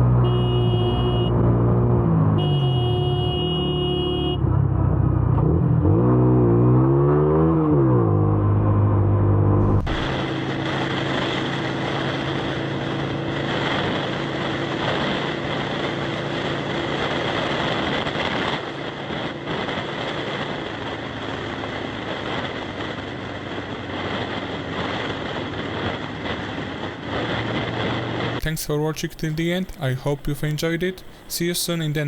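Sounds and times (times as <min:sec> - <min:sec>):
engine revving: 0:00.0 - 0:18.5
vehicle engine drone: 0:00.0 - 0:32.0
wind on microphone: 0:09.6 - 0:28.4.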